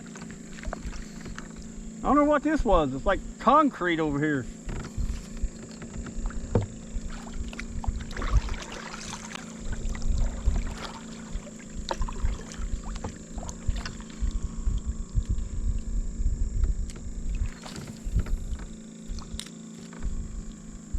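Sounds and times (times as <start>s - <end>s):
paddle knocking against hull: 0.0s - 1.8s, 4.5s - 14.4s, 16.6s - 20.4s
paddle splashing in water: 0.0s - 1.8s, 4.7s - 14.3s, 17.4s - 19.4s.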